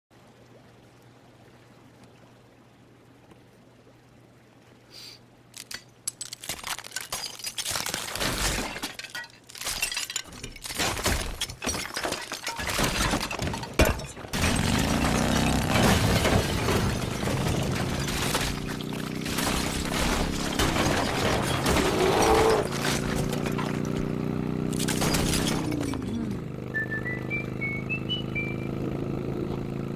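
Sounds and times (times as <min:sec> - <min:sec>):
glass shattering: 0:05.6 - 0:26.3
debris clattering: 0:05.6 - 0:26.4
motorcycle engine running: 0:14.6 - 0:15.8, 0:22.5 - 0:25.0, 0:25.7 - 0:29.9.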